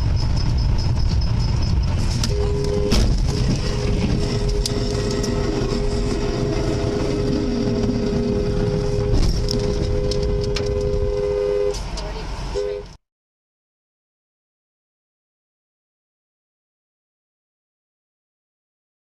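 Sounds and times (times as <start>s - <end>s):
road and engine rumble: 0.0s - 13.0s
two-tone car horn: 2.2s - 13.0s.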